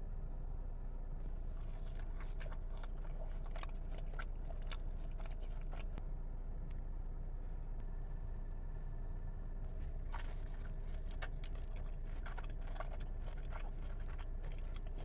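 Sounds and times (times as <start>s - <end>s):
low background hum: 0.0s - 15.0s
person biting and chewing: 1.6s - 6.0s, 9.8s - 15.0s.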